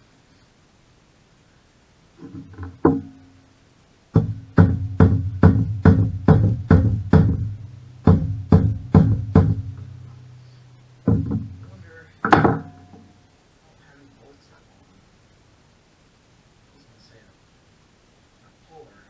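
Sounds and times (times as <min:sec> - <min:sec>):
hammer ringing on metal: 0:04.2 - 0:10.2, 0:11.0 - 0:13.2.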